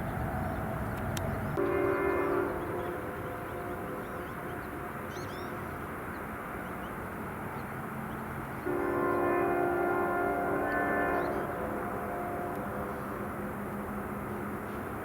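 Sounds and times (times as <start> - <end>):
locomotive air horn chord: 0.0 - 5.8, 8.6 - 14.8
diesel locomotive rumbling past: 0.0 - 15.0.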